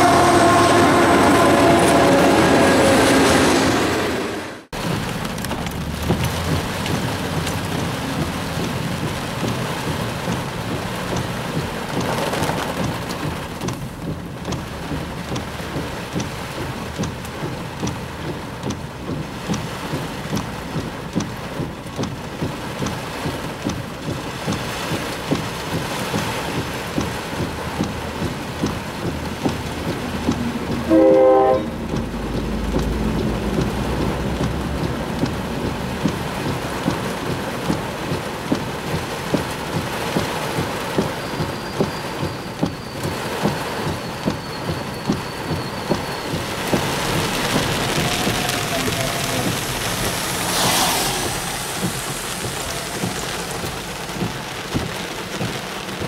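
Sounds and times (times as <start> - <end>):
train horn: 0.0 - 4.6, 30.9 - 31.9
heavy rain on car roof: 4.6 - 56.0.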